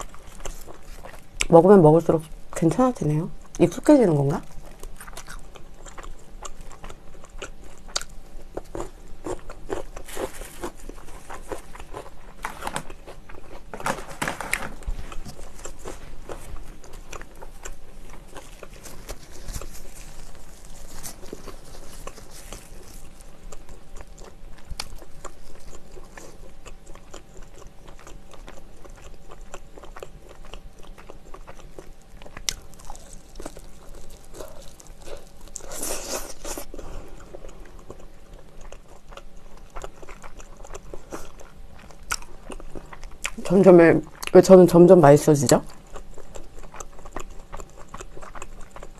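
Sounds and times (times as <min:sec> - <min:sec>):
biting and chewing fried chicken: 0:00.0 - 0:48.9.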